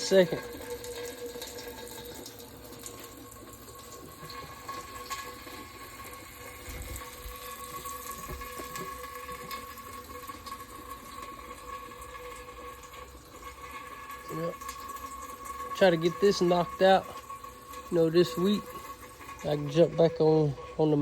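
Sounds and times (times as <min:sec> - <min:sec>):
coolant splashing pour: 0:00.0 - 0:21.0.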